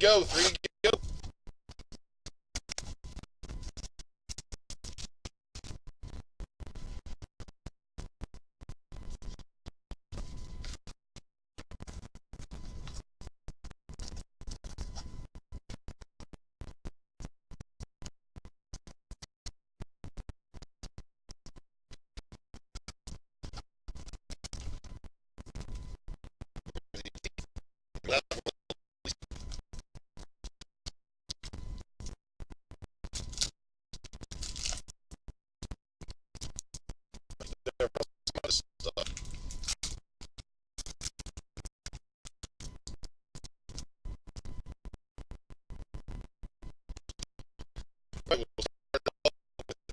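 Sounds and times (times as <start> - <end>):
garbled choppy speech: 0.0 - 1.0, 26.7 - 27.4, 28.0 - 28.8, 37.4 - 39.1, 48.3 - 49.9.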